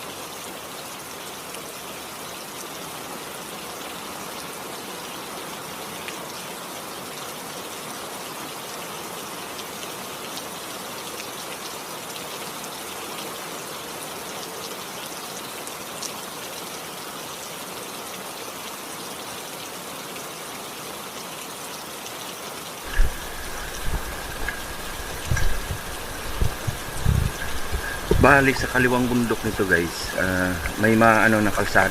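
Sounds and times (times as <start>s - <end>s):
steady rain falling: 0.0s - 31.9s
loud low thumps: 22.9s - 28.7s
thin steady tone: 22.9s - 31.9s.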